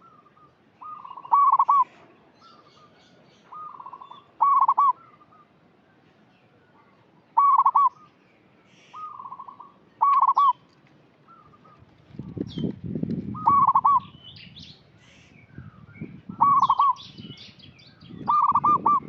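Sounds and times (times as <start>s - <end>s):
dove cooing: 0.8s - 2.0s, 3.5s - 5.1s, 7.4s - 8.0s, 9.0s - 10.6s, 13.4s - 14.1s, 16.4s - 17.0s, 18.3s - 19.0s.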